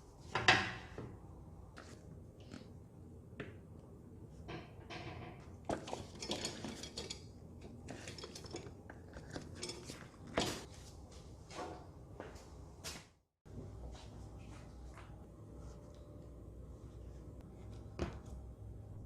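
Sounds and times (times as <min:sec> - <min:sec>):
metal tools clinking: 0:05.7 - 0:10.7.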